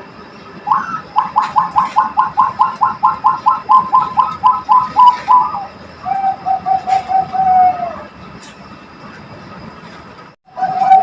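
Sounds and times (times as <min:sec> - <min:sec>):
dove cooing: 0:00.6 - 0:08.2, 0:10.5 - 0:11.0.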